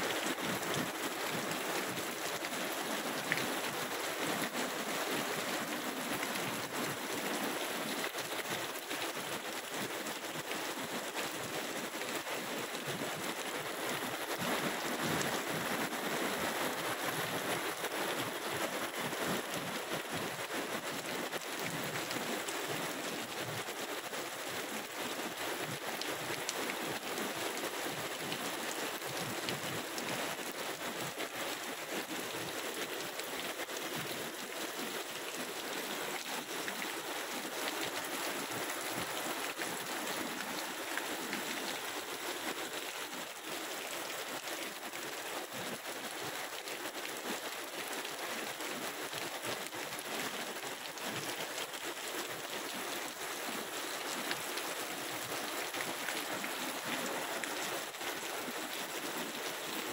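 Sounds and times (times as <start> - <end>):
raindrops pattering on hard surfaces: 0.1 - 51.0, 51.6 - 59.9
heavy rain hissing: 35.4 - 42.5.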